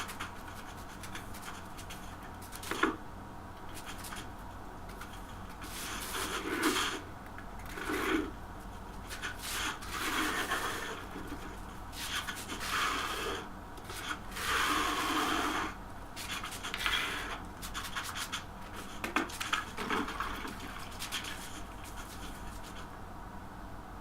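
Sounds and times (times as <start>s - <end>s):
scraping on hard surface: 4.9s - 22.9s.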